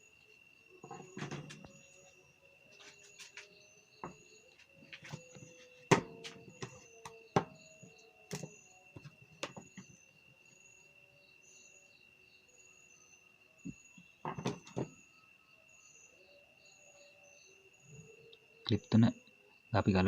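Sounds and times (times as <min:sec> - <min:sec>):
crickets chirring: 0:00.0 - 0:20.0
plastic parts clicking and knocking: 0:14.2 - 0:14.9.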